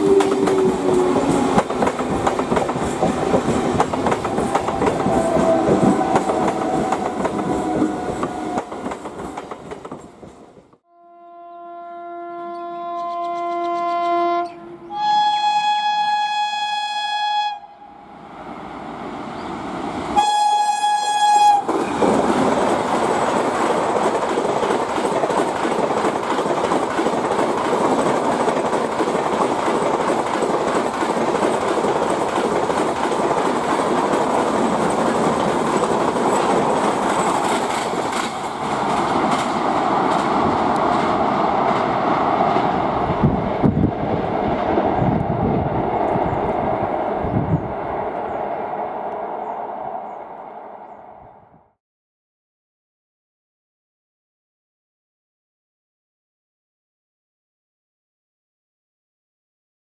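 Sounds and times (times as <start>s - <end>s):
train rushing past: 0.0s - 10.8s, 18.0s - 51.5s
train horn blasts: 4.4s - 9.0s, 10.8s - 18.2s, 20.2s - 21.9s
wheels clattering over rail joints: 21.7s - 42.8s.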